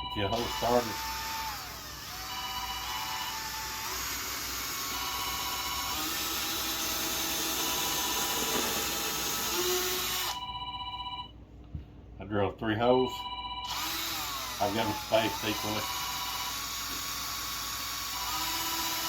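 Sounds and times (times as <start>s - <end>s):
phone ringtone chiming: 0.0s - 0.8s, 2.3s - 3.3s, 10.2s - 11.3s, 13.1s - 13.8s
electric drill boring into cork: 0.2s - 10.4s, 13.6s - 19.0s.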